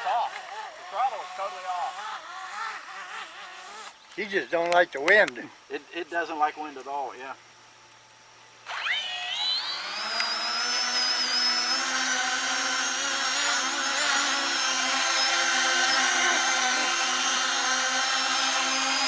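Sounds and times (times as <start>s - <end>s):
model aircraft motor whining: 0.0s - 4.2s, 8.6s - 19.0s.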